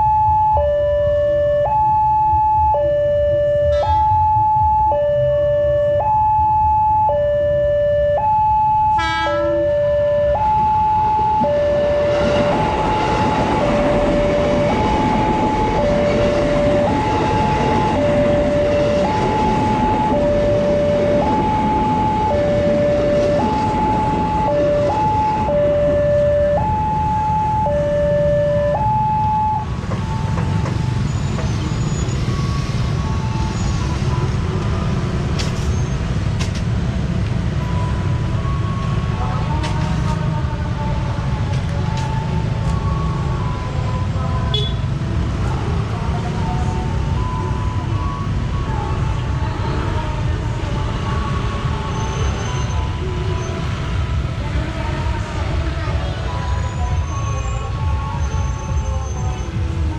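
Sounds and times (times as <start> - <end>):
two-tone crossing alarm: 0.0 - 34.6, 37.5 - 39.7, 46.3 - 49.2.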